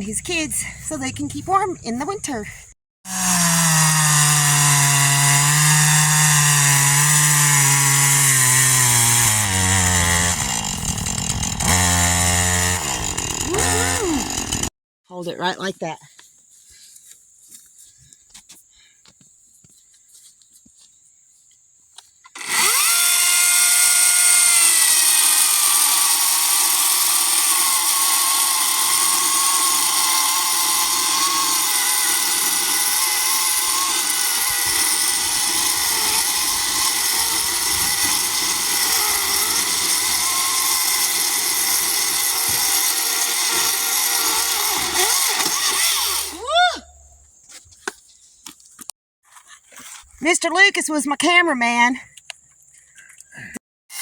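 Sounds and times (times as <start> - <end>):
chainsaw cutting through log: 3.1 - 14.7, 22.3 - 46.5.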